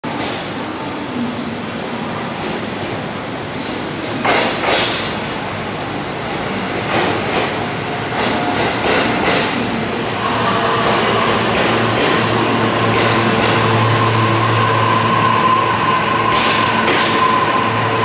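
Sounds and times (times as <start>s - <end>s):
train wheels clacking over rail joints: 4.2s - 5.2s, 6.4s - 7.6s, 8.2s - 9.7s, 10.9s - 13.6s, 16.3s - 17.3s
high wheel squeals: 9.8s - 18.0s.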